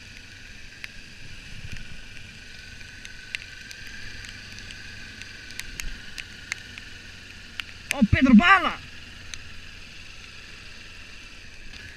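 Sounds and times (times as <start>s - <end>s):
sharp ticks: 1.7s - 8.4s, 9.2s - 9.5s.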